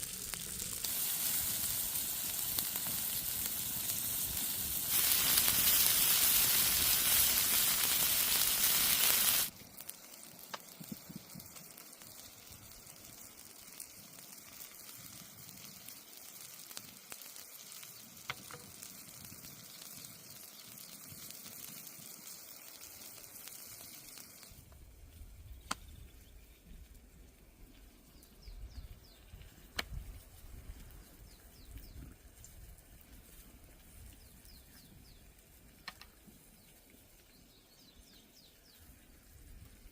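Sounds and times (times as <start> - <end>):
food sizzling in hot oil: 0.0 - 24.7.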